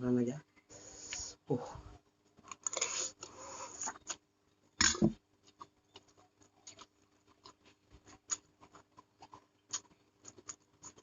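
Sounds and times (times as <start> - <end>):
wet chewing clicks: 5.4 - 11.0.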